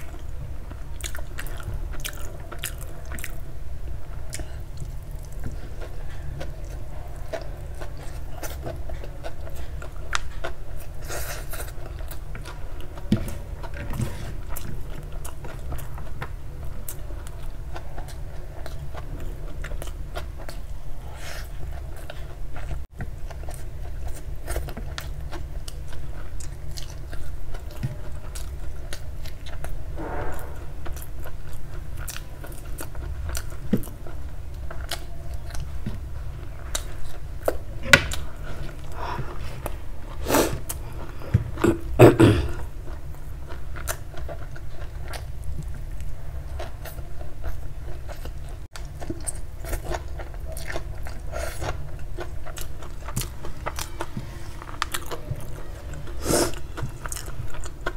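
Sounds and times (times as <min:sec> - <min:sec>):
steady low hum: 0:00.0 - 0:57.9
chewing with wet mouth clicks: 0:00.1 - 0:03.4, 0:21.7 - 0:29.8, 0:30.9 - 0:36.0, 0:42.9 - 0:57.9.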